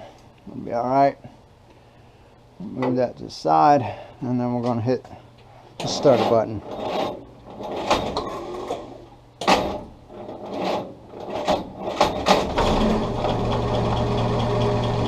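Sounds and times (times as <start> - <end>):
knocks and clatters: 6.8 - 8.3
starter motor cranking engine: 10.6 - 15.0.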